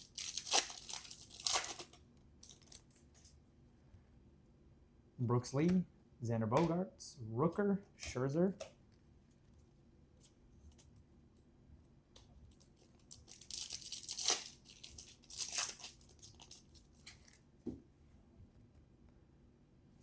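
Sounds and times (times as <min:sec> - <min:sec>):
wrapper tearing and crinkling: 0:00.0 - 0:03.3, 0:12.5 - 0:17.4.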